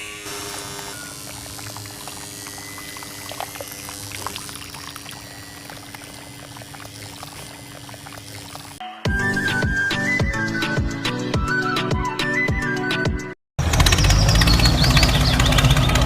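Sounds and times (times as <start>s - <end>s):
small electric motor humming: 0.0s - 8.8s
water pouring and splashing: 0.8s - 8.8s.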